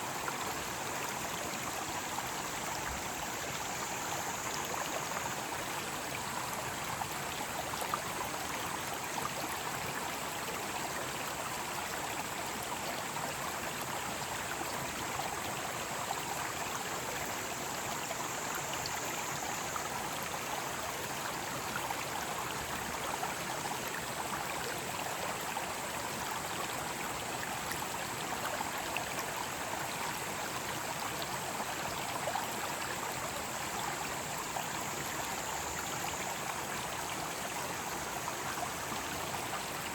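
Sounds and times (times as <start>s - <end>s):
stream rushing over rocks: 0.0s - 39.9s
cicadas droning: 0.5s - 7.1s, 15.9s - 23.6s, 30.3s - 39.9s.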